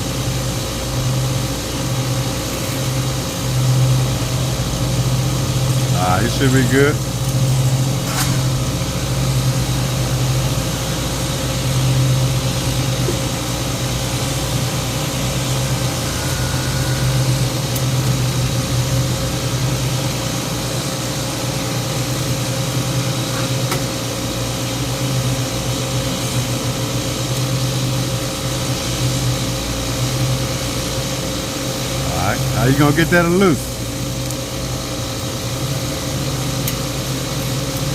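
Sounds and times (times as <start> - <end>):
motor droning: 0.0 - 23.8.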